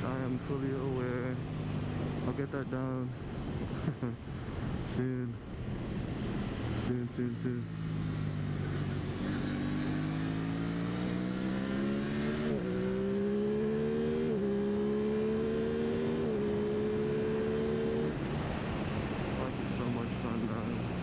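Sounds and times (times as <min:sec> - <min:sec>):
motorcycle engine accelerating: 0:07.6 - 0:21.0.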